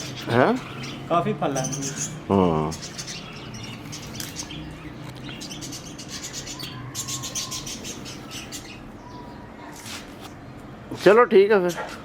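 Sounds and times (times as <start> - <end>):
small birds trilling: 0.0 - 10.9.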